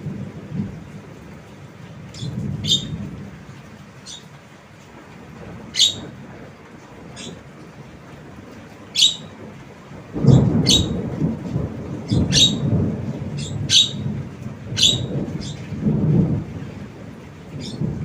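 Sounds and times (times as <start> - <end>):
loud low rumbling: 0.0 - 4.2, 9.0 - 18.0
myna squawking: 2.2 - 3.0, 5.8 - 6.1, 9.0 - 9.3, 10.6 - 11.0, 12.1 - 12.6, 13.4 - 14.0, 14.8 - 15.6.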